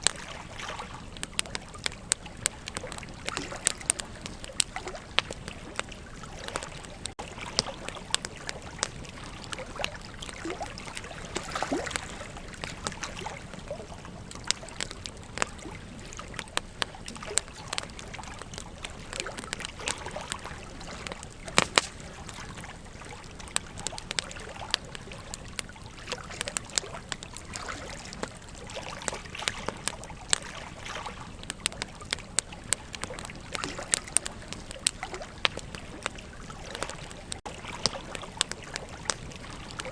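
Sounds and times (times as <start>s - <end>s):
campfire crackling and popping: 0.0s - 39.9s
flowing river: 0.0s - 39.9s.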